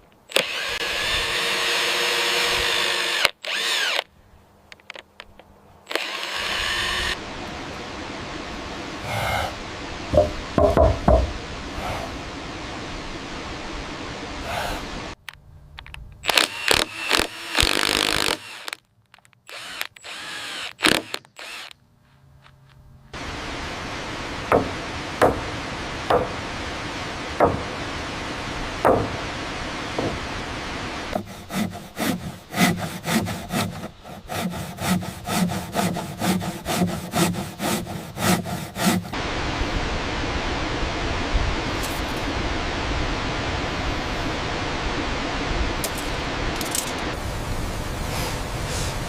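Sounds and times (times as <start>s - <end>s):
steady rushing noise: 6.6s - 16.0s, 23.1s - 34.0s, 35.8s - 49.0s
sharp knocks on wood: 10.1s - 11.4s, 24.5s - 25.5s, 26.1s - 26.4s, 27.4s - 27.7s, 28.8s - 29.2s, 30.0s - 30.2s
hand saw sawing strokes: 31.1s - 39.2s.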